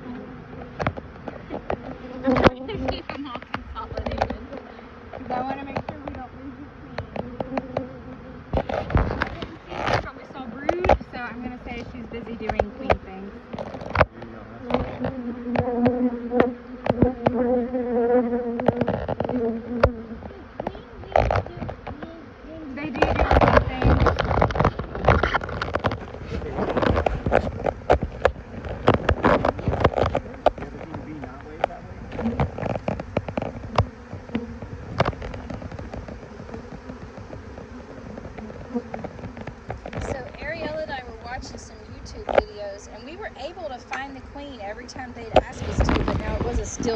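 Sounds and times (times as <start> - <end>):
honeybee buzzing: 0.0 - 46.9.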